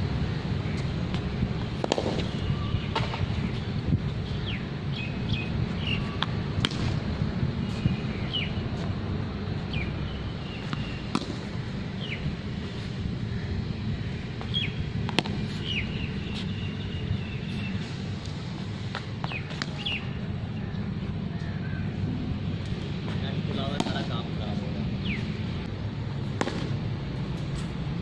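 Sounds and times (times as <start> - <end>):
steady low rumble: 0.0 - 28.0
small birds chirping: 2.2 - 6.2, 7.6 - 8.8, 9.6 - 12.3, 15.4 - 18.4, 19.2 - 21.8, 25.0 - 25.7.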